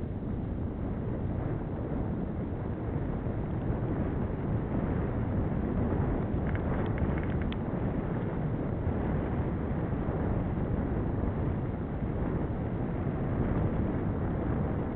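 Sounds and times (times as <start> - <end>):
wind buffeting microphone: 0.0 - 14.9
faint high ticks: 6.4 - 7.6.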